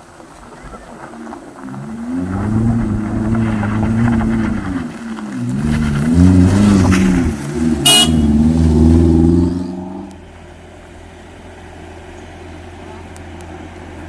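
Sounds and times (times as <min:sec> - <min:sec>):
horn toot: 0:07.8 - 0:08.5.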